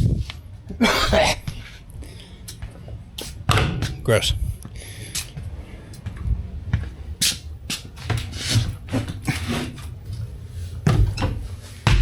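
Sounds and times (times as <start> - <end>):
handling knocks: 2.6 - 4.7, 10.8 - 12.0.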